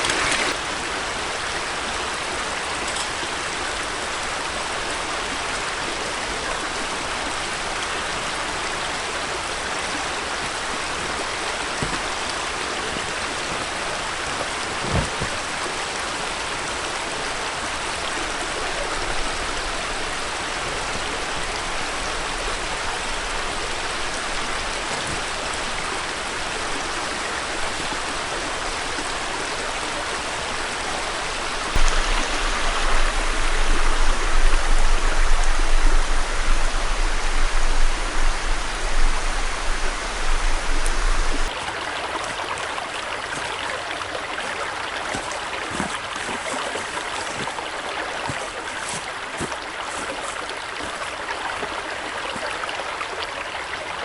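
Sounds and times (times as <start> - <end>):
stream flowing: 0.0 - 54.0
low rumble: 31.8 - 41.5.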